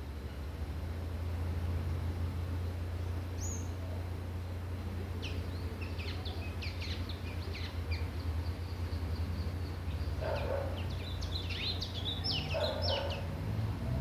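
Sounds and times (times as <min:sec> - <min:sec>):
sharp high bird chirps: 0:05.2 - 0:13.3.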